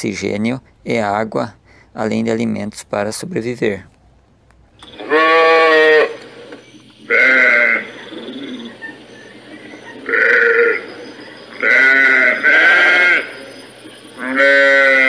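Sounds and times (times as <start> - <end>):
sheep bleating: 5.0 - 6.2, 7.0 - 7.9, 10.0 - 10.8, 11.6 - 13.4, 14.2 - 15.0.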